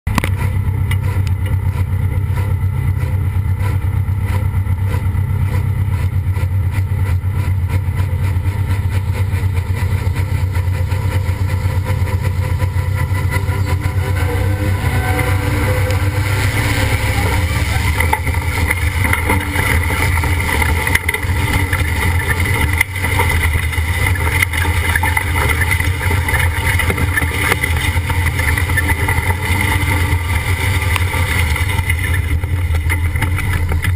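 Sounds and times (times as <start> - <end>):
tractor engine droning under load: 0.0 - 33.9.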